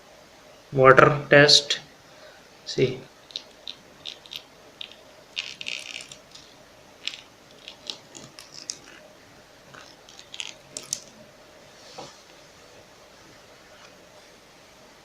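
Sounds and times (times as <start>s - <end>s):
plastic sticker clicking and crinkling: 3.3s - 9.0s, 9.7s - 11.2s.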